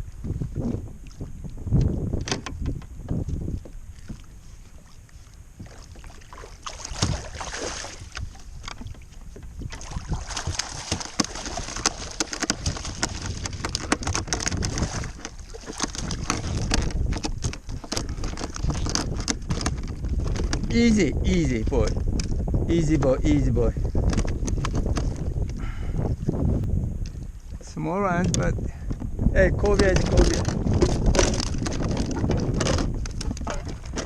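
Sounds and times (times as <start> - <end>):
water sloshing around kayak: 0.0 - 34.0
wind buffeting microphone: 0.0 - 34.0
small clicks and knocks: 10.6 - 20.7, 21.9 - 22.4.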